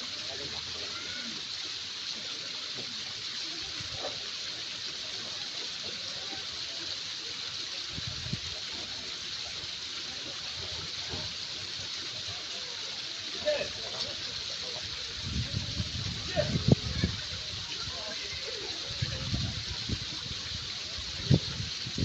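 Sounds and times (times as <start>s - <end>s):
waterfall rushing: 7.2s - 22.0s.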